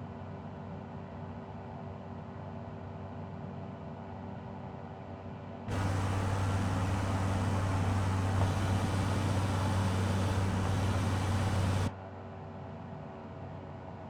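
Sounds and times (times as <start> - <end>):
aircraft engine hum: 5.7 - 11.9
airflow hiss: 5.7 - 11.9.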